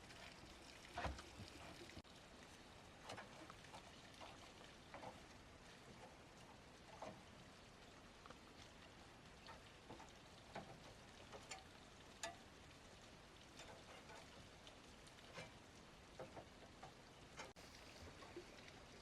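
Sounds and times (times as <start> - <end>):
light ticks and taps: 3.0 - 12.7, 13.4 - 17.6.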